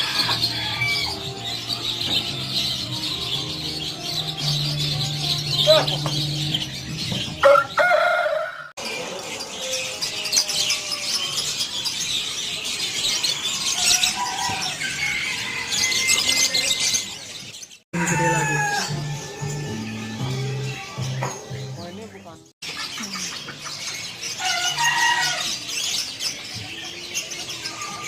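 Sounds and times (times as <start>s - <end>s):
background music: 0.0s - 8.6s, 18.0s - 22.5s
songbirds chirping: 0.0s - 28.0s.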